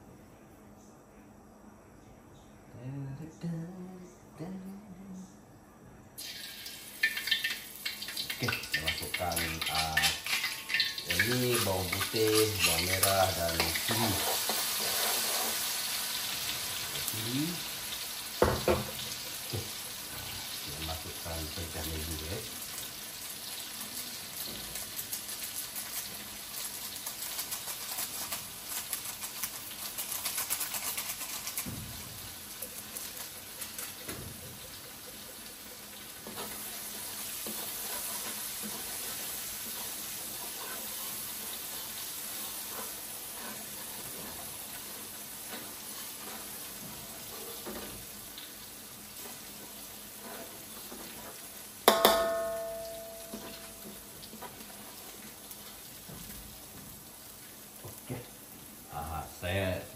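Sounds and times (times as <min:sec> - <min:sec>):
food sizzling in hot oil: 0:06.2 - 0:59.9
sharp metallic clang: 0:51.9 - 0:53.8.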